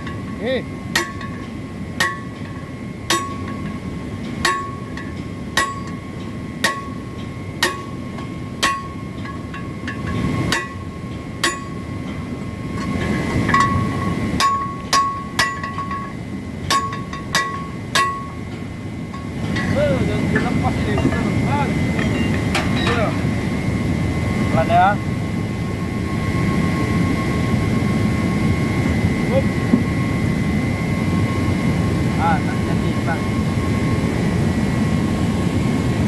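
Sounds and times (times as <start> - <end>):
hammer blows on metal: 0.0 - 23.4.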